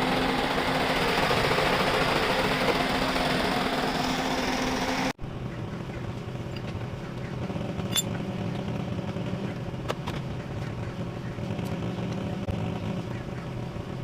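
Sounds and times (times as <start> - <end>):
loud buzzing machine: 0.0 - 5.2
engine idling: 0.0 - 14.0.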